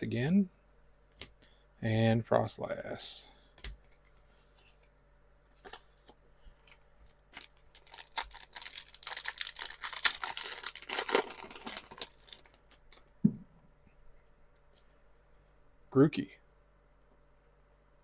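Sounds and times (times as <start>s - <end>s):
foil wrapper tearing and crinkling: 7.0s - 13.0s.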